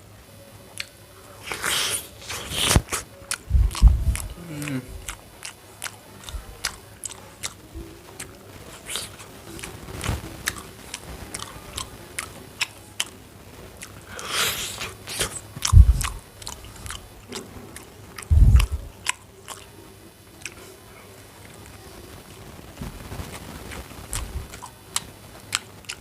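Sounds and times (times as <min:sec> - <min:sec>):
person chewing and biting food: 0:00.8 - 0:07.6, 0:08.2 - 0:13.2, 0:13.8 - 0:19.7, 0:23.7 - 0:26.0
wet mouth clicks: 0:00.8 - 0:07.6, 0:08.2 - 0:13.2, 0:13.8 - 0:19.7, 0:23.7 - 0:26.0
slurp: 0:01.4 - 0:05.1
deep thumps: 0:03.5 - 0:04.4, 0:15.7 - 0:16.2, 0:18.3 - 0:18.9.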